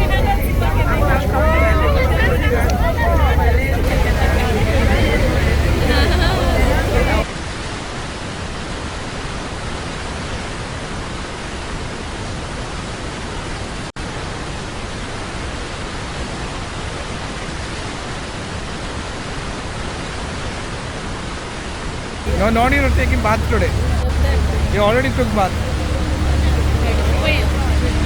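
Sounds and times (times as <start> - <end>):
waterfall roaring: 0.0 - 8.4, 22.3 - 28.0.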